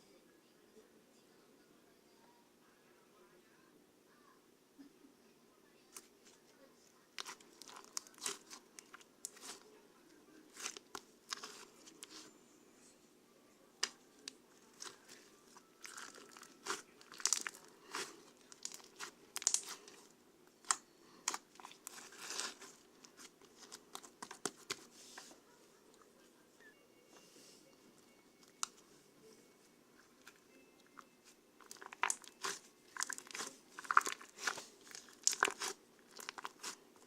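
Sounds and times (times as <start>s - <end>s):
crinkling and tearing: 7.2s - 9.6s, 10.5s - 12.3s, 13.8s - 24.9s, 31.6s - 37.0s.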